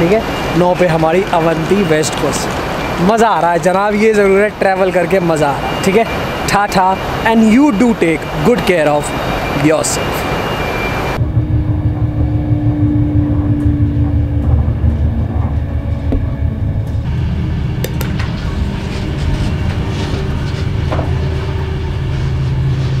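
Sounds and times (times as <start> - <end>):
steady hum: 0.0 - 23.0
train rumble heard on board: 11.2 - 23.0.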